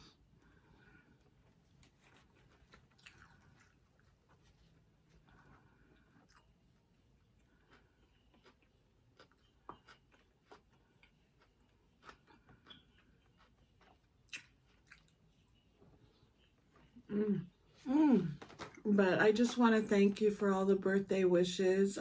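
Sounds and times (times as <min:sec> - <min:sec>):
person chewing: 0:01.2 - 0:17.4.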